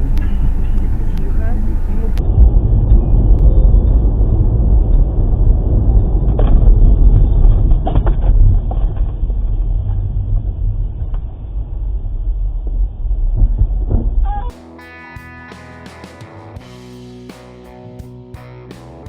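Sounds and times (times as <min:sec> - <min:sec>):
car driving low rumble: 0:00.0 - 0:14.5.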